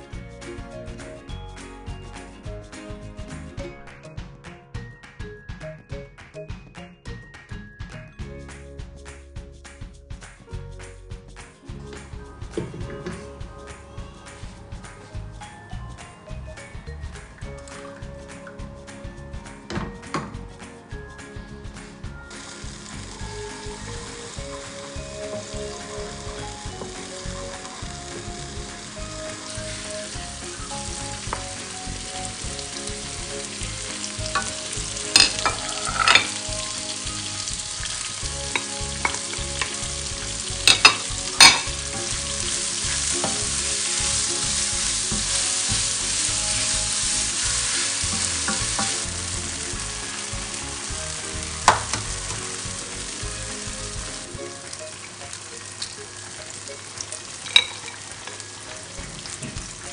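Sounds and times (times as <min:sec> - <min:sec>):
vegetables sizzling in a pan: 0:22.3 - 0:59.9.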